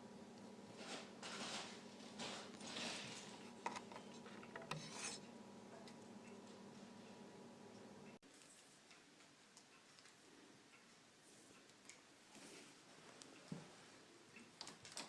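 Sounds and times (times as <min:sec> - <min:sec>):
faint steady hum: 0:00.0 - 0:15.0
scraping sounds: 0:00.7 - 0:05.3.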